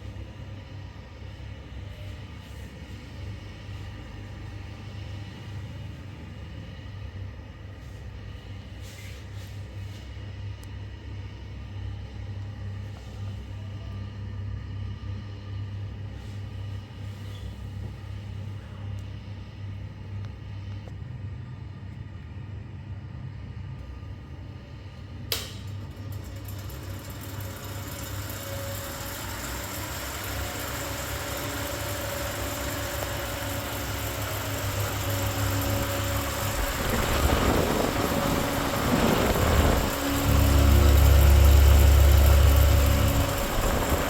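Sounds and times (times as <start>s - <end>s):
fan whirring: 0.0s - 20.9s, 23.3s - 44.0s
fan airflow buffeting microphone: 0.0s - 44.0s
fan switch click: 25.3s - 25.8s.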